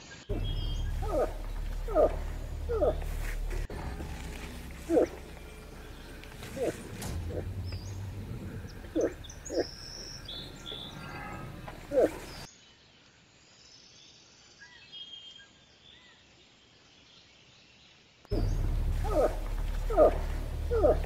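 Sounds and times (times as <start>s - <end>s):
birdsong: 0.0s - 13.0s, 13.8s - 21.0s
moose grunting calls: 0.3s - 12.5s, 18.3s - 21.0s.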